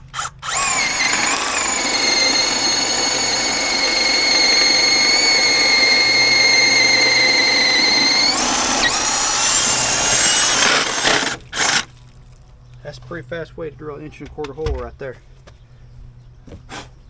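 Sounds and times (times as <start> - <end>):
power drill whining: 0.0 - 12.0.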